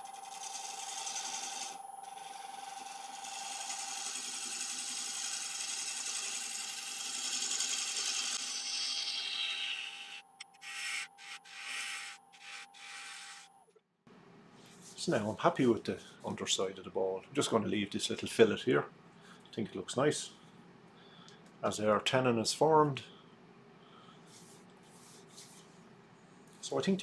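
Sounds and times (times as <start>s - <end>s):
lathe tool scraping wood: 0.0s - 13.5s.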